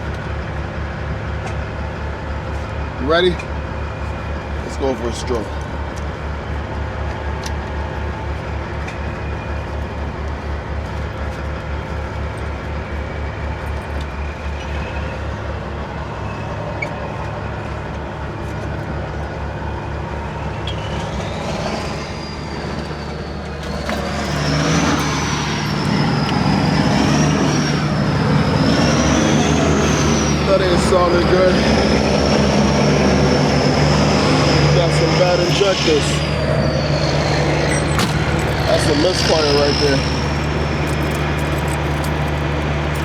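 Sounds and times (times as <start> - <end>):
diesel truck engine idling: 0.0 - 43.0
high wavering whine: 12.0 - 43.0.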